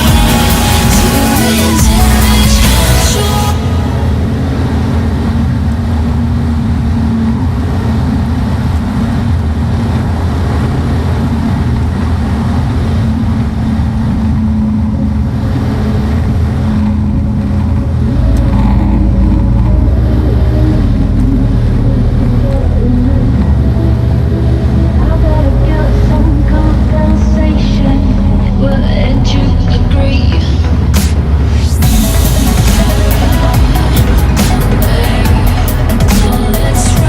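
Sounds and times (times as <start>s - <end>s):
truck engine droning: 0.0s - 37.0s.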